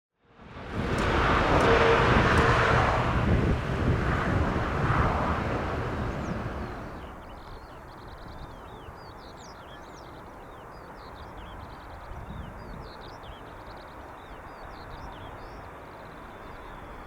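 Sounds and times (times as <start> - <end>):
low outdoor rumble: 0.3 - 7.2
jet aircraft noise: 0.3 - 7.3.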